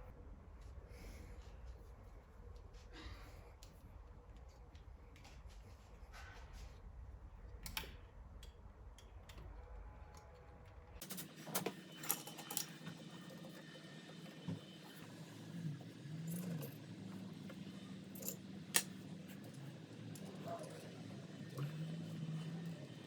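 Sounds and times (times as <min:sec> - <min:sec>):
small metal tools clinking: 0:18.0 - 0:19.6.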